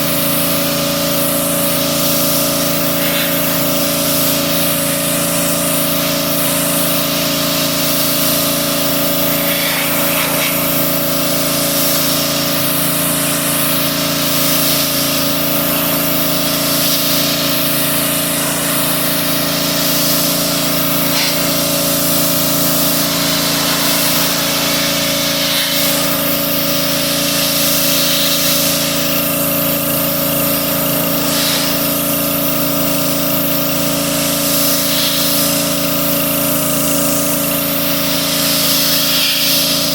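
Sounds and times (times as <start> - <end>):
pressure washer engine running: 0.0 - 39.9
water spray hissing: 9.2 - 12.7, 14.5 - 29.1, 31.0 - 31.9.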